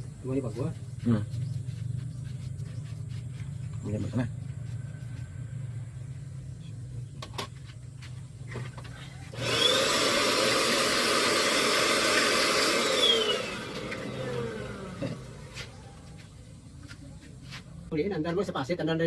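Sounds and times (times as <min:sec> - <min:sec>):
air blower motor whine: 0:08.9 - 0:16.0.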